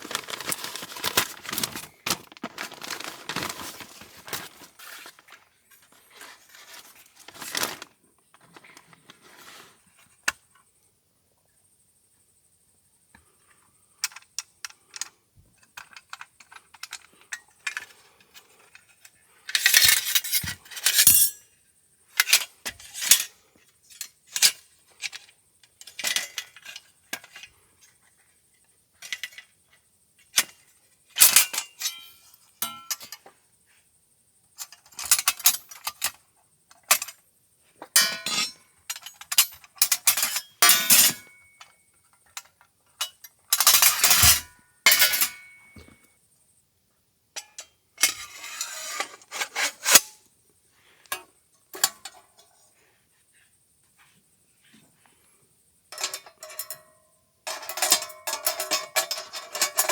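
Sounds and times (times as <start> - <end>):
camp gear clinking: 0.0 - 8.9, 31.2 - 33.2, 38.0 - 42.2.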